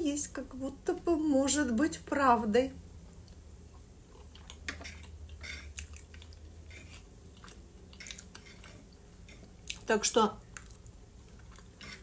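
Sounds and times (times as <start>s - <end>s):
chewing fried potatoes: 3.1s - 12.0s.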